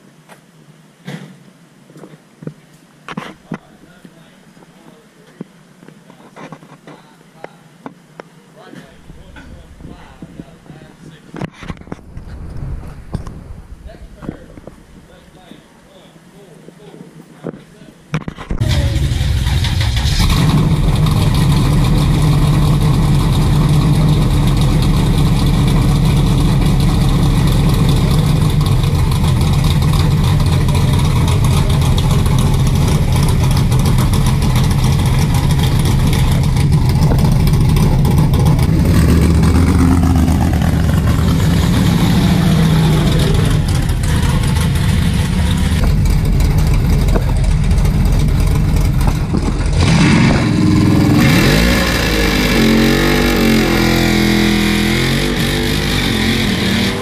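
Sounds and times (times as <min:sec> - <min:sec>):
drag racing car engine: 0:18.4 - 0:57.0.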